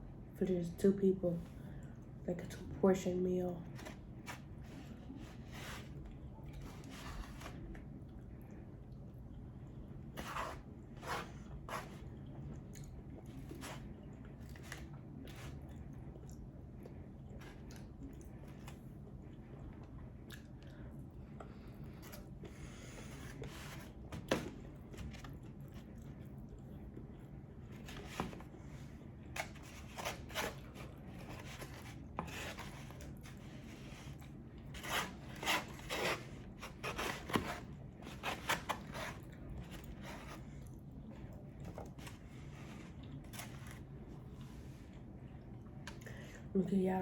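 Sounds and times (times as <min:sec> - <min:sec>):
chewing and wet mouth sounds: 0:11.5 - 0:22.5, 0:25.2 - 0:27.8.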